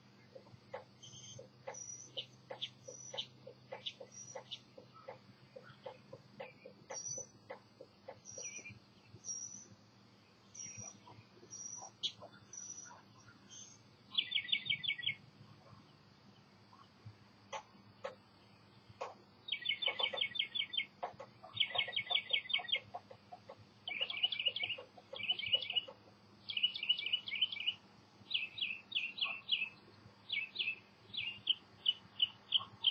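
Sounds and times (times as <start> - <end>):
songbird high chirps: 0.0 - 32.9
lower short bird calls: 19.0 - 27.8, 28.4 - 32.9.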